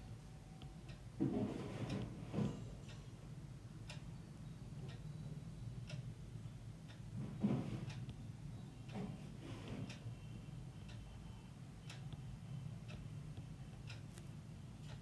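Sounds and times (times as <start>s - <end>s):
low room hum: 0.0s - 15.0s
clock ticking: 6.9s - 7.1s.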